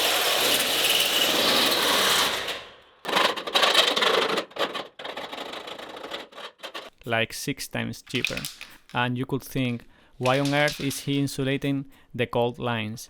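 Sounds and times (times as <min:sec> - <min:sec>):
handling rustling: 0:10.2 - 0:11.4.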